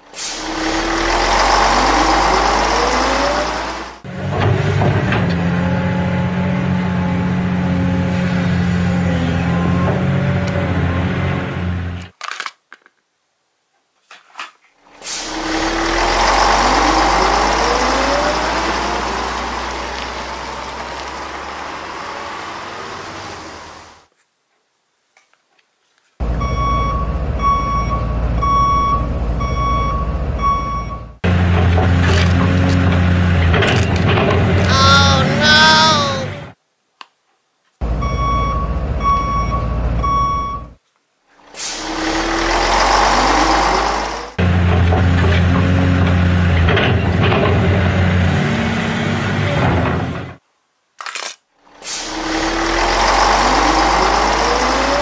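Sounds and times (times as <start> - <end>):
truck engine running: 0.0 - 11.2
truck engine revving: 0.0 - 12.0, 15.0 - 24.0, 41.6 - 50.4, 51.7 - 55.0
reversing alarm beeps: 26.4 - 31.1, 38.0 - 40.7.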